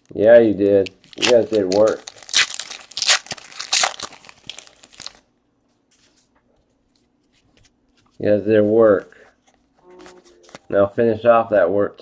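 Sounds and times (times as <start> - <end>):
wrapper crinkling and tearing: 0.6 - 5.2.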